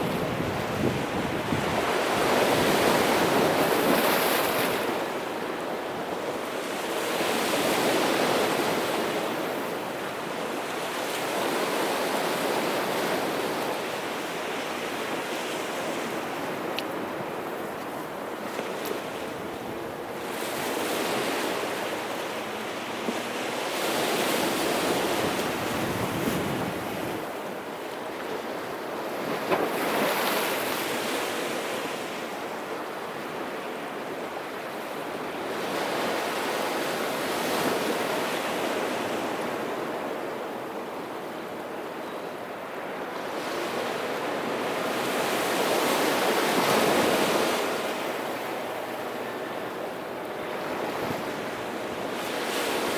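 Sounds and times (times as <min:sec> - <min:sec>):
wind noise on microphone: 0:00.0 - 0:06.0, 0:23.0 - 0:27.5, 0:50.4 - 0:52.9
sea waves breaking on shore: 0:00.0 - 0:52.9.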